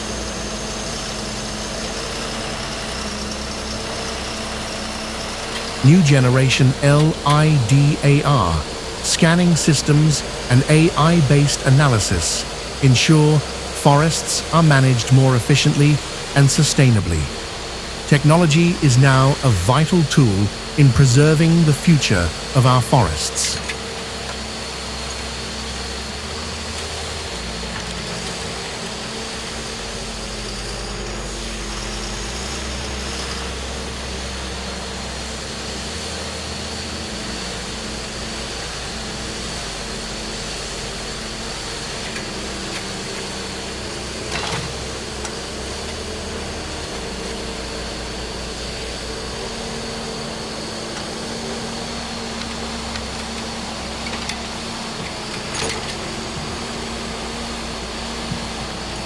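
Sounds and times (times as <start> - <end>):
heavy machinery engine running: 0.0 - 35.4
high machine whine: 0.0 - 59.0.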